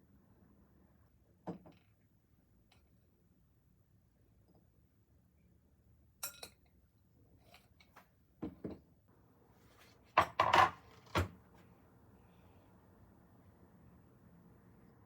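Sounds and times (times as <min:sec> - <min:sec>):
dishes and utensils clattering: 0:10.2 - 0:11.3.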